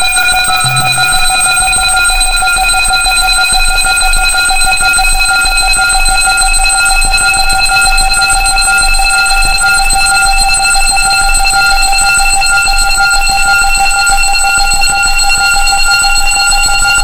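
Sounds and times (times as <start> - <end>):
steady electronic tones: 0.0 - 4.3.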